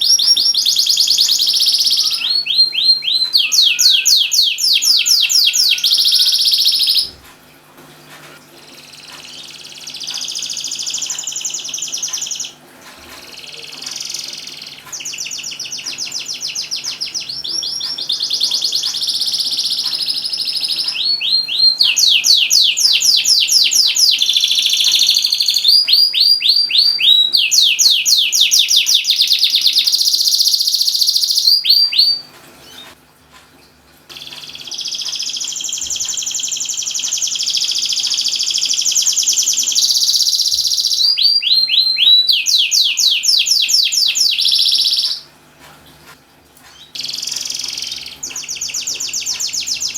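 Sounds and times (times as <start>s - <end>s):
canary singing chirps and trills: 0.0s - 7.2s, 8.5s - 33.0s, 34.1s - 45.8s, 46.6s - 49.9s.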